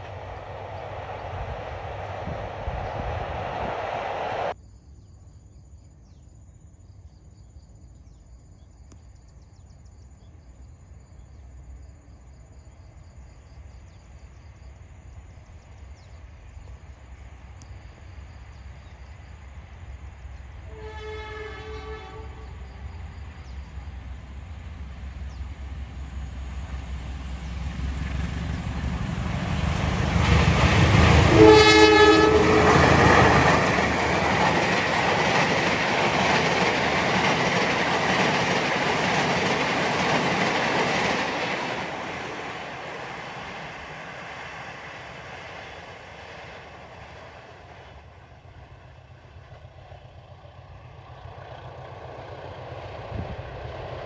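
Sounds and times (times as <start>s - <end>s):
diesel locomotive rumble: 0.0s - 4.6s, 16.3s - 54.0s
train horn blast: 20.6s - 22.7s, 31.0s - 33.7s.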